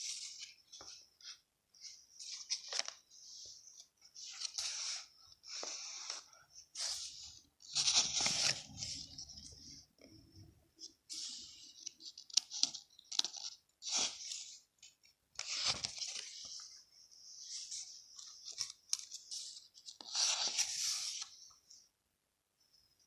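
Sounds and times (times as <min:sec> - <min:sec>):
paper rustling and crinkling: 0:00.0 - 0:09.8, 0:10.8 - 0:21.5.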